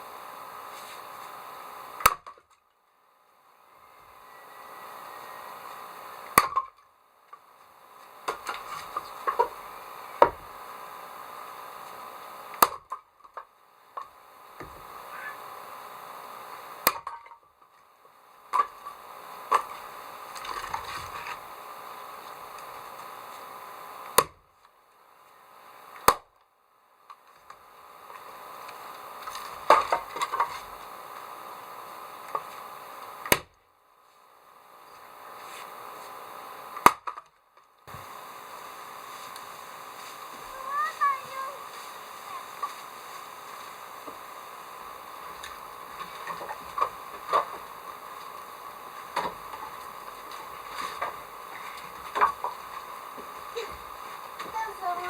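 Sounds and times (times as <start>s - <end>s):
axe chopping firewood: 6.3s - 6.7s, 8.2s - 9.6s, 12.6s - 13.0s, 24.1s - 24.4s, 33.2s - 33.5s, 36.8s - 37.2s
axe chopping wood: 6.4s - 6.7s, 24.2s - 24.4s, 36.8s - 37.2s.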